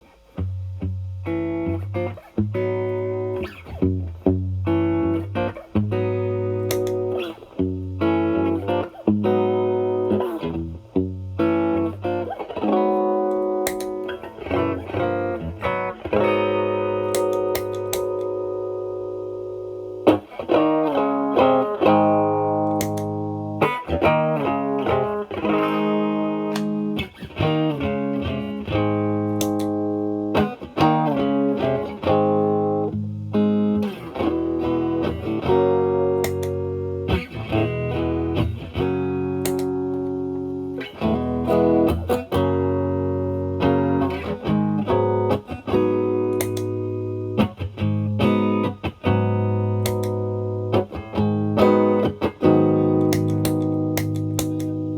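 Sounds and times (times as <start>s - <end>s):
electric guitar picking: 0.0s - 54.9s.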